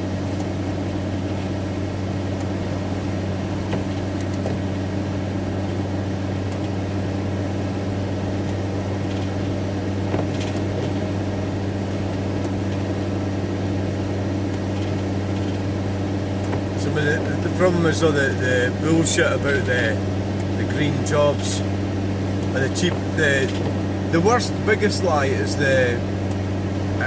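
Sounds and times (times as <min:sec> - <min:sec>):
engine and road drone: 0:00.0 - 0:27.0.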